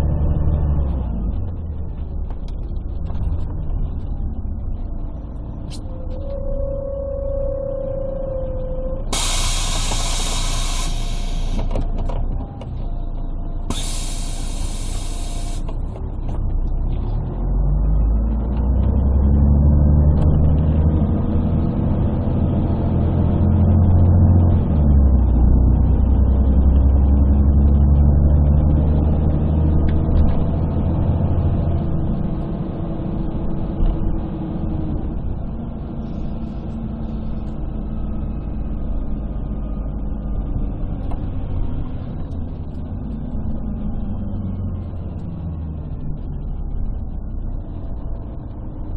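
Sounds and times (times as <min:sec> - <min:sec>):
bus diesel engine pulling away: 0:09.0 - 0:12.3, 0:13.0 - 0:48.9
compressed air hiss: 0:09.1 - 0:11.7, 0:13.7 - 0:15.7.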